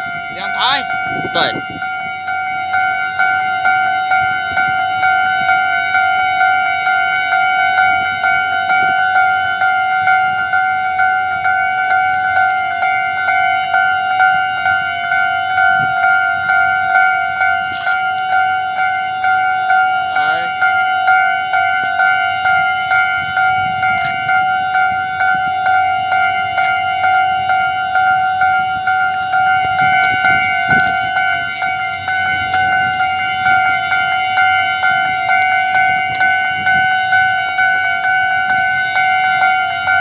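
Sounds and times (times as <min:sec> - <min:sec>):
level crossing warning bell: 0:00.0 - 0:40.0.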